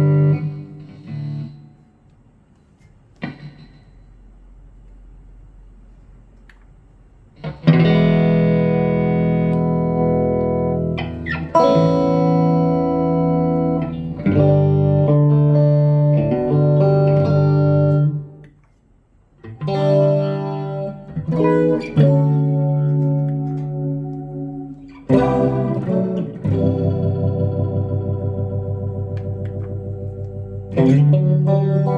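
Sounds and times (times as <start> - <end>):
electric guitar chords ringing: 0.0 - 1.9, 7.4 - 18.4, 19.4 - 31.9
faint amp hum: 0.0 - 31.9.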